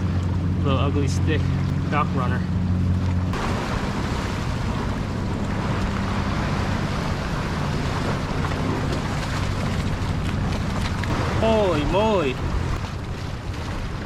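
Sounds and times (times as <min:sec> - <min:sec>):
open water: 0:00.0 - 0:14.0.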